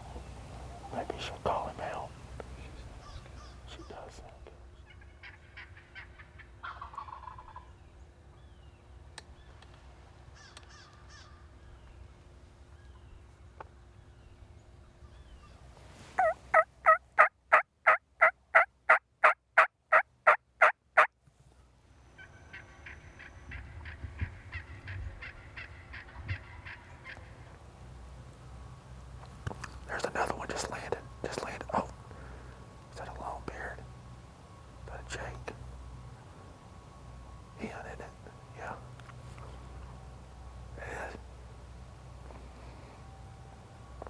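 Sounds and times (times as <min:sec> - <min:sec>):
turkey hen yelping: 0:04.9 - 0:07.5, 0:16.2 - 0:21.1.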